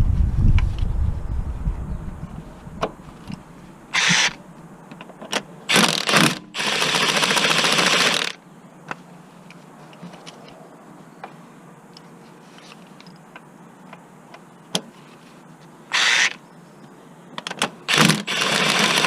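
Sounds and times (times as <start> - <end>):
cordless power tool rattling: 4.0 - 4.4, 5.7 - 8.4, 16.0 - 16.4, 17.9 - 19.0.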